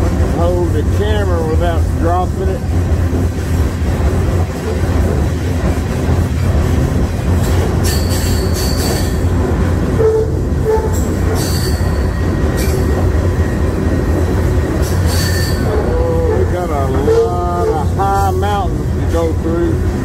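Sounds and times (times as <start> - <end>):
train wheels rumbling: 0.0 - 20.0
high-pitched wheel squeal: 10.0 - 12.8, 14.9 - 17.8.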